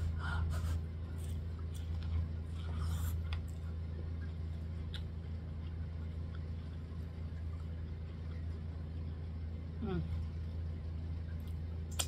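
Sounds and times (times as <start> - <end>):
low hum: 0.0 - 12.0
person chewing corn: 0.4 - 7.8.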